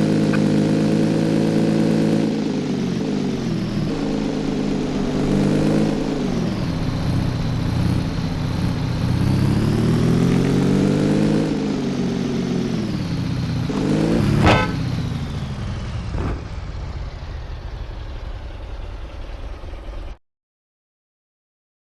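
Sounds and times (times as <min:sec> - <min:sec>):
motorcycle engine revving: 0:00.0 - 0:20.1
sharp high-pitched sound: 0:14.0 - 0:14.9.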